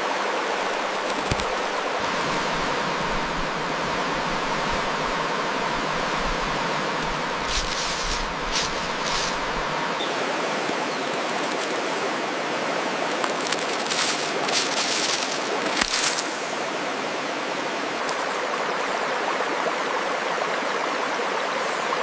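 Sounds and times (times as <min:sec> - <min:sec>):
rushing outdoor noise: 0:00.0 - 0:22.0
high crackly bursts: 0:00.3 - 0:02.0, 0:13.1 - 0:16.2.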